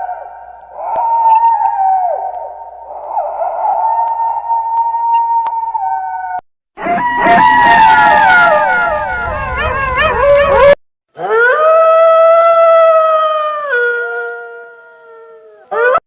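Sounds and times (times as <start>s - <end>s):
single long wolf howl: 0.0s - 16.0s
wolves howling in chorus: 9.6s - 16.0s.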